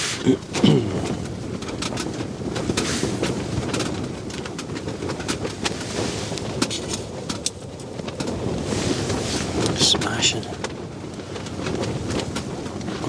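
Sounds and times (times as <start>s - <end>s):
tent clicks and rattles: 0.0s - 13.0s
wind buffeting tent: 0.0s - 13.0s.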